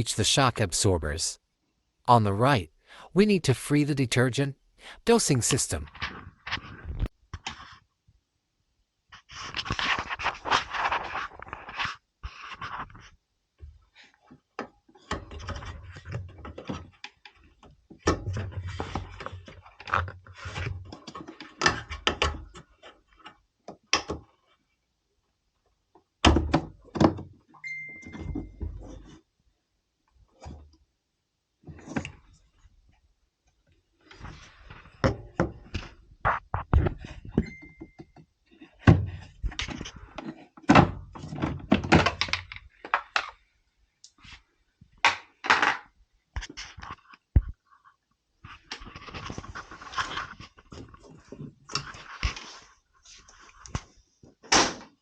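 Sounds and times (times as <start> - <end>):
plastic and metal parts rattling: 38.6 - 43.4.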